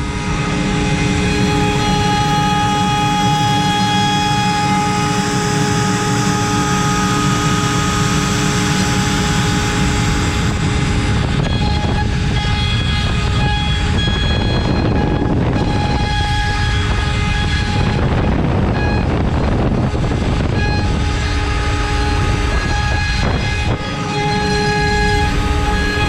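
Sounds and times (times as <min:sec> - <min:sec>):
router spindle whine: 0:00.0 - 0:26.0
cutter milling wood: 0:00.2 - 0:13.6.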